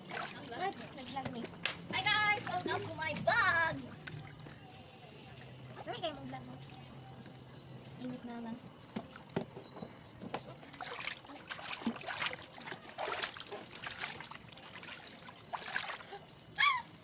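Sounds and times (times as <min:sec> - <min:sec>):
water splashing in plastic bin: 0:00.0 - 0:04.4, 0:10.7 - 0:16.1.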